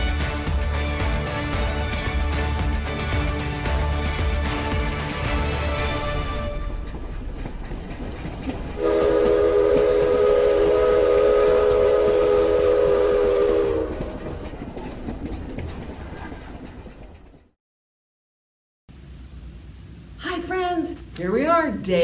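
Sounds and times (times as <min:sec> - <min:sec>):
train horn chord: 0:00.0 - 0:07.2, 0:08.8 - 0:14.1
train rumbling: 0:00.0 - 0:17.6.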